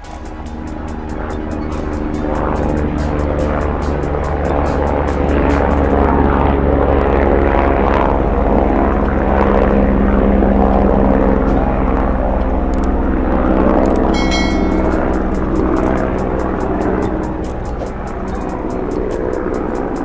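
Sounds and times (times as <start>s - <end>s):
propeller drone: 0.0s - 20.0s
high tones: 14.2s - 15.6s
low hum: 14.2s - 17.2s.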